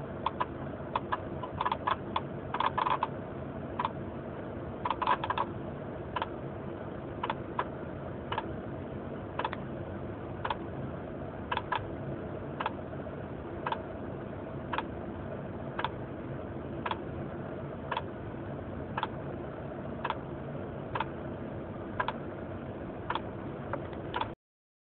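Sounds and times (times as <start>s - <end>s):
steady low hum: 0.0s - 24.4s
sharp clicking from car: 0.2s - 3.1s, 4.9s - 5.5s, 9.4s - 9.6s, 16.8s - 17.0s, 22.0s - 22.2s, 23.1s - 24.4s.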